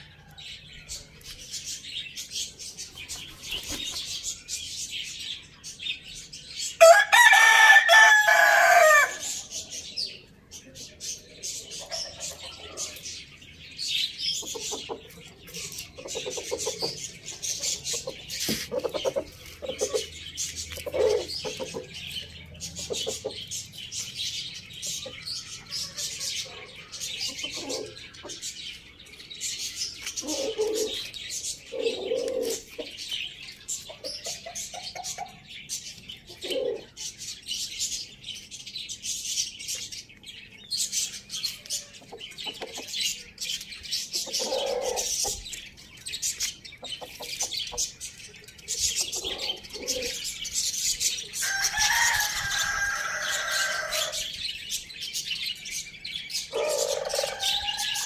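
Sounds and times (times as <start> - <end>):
small birds chirping: 0.0 - 58.0
low calls of larger birds: 30.2 - 33.0, 44.2 - 45.5, 48.8 - 50.7, 56.5 - 58.0.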